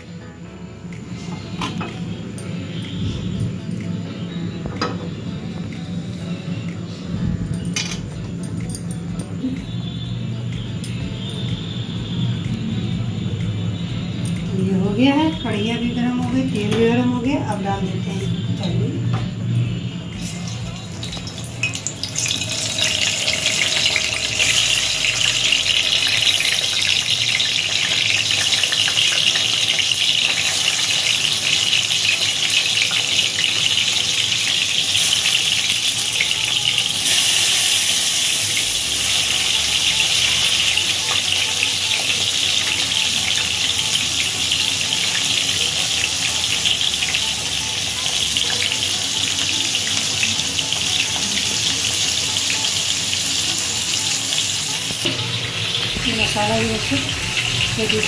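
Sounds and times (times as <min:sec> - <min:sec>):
food sizzling in hot oil: 0:20.2 - 0:58.0.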